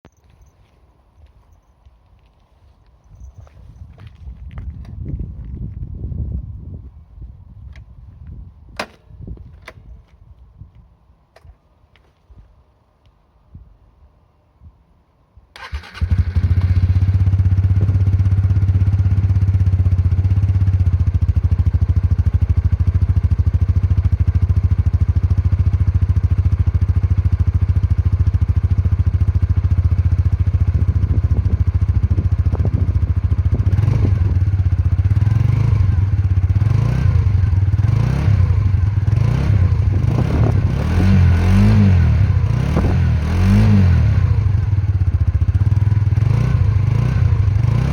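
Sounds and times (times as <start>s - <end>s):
motorcycle engine idling and revving: 15.6s - 47.9s.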